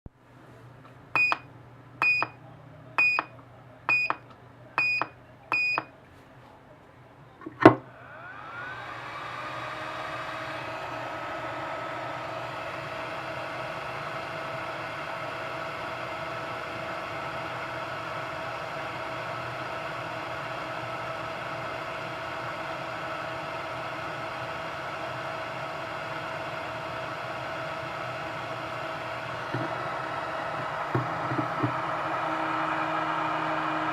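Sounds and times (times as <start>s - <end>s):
blower fan whine: 7.0s - 33.9s.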